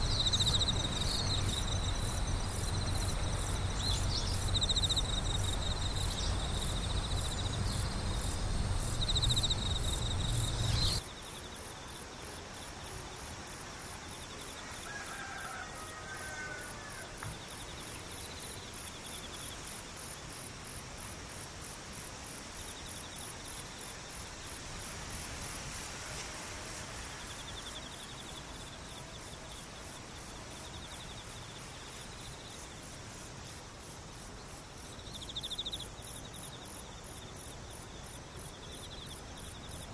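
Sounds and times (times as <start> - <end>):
low rumble: 0.0 - 11.0
high insect chirp: 0.0 - 39.9
insect trill: 0.0 - 39.9.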